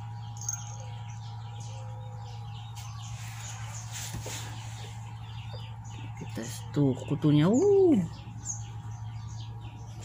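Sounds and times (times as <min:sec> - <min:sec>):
small birds chirping: 0:00.0 - 0:10.0
steady low hum: 0:00.0 - 0:10.0.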